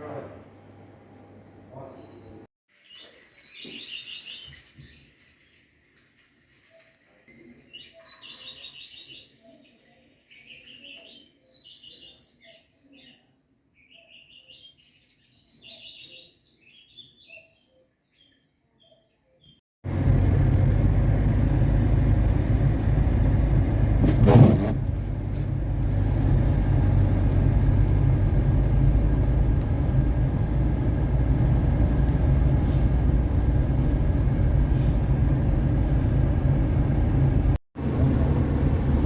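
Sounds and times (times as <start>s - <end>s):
car engine and road rumble: 19.8s - 39.0s.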